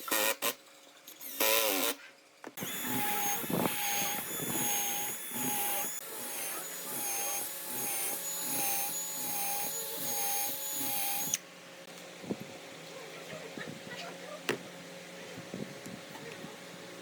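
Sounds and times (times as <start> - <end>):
power tool whining: 0.0 - 2.0, 2.6 - 11.4.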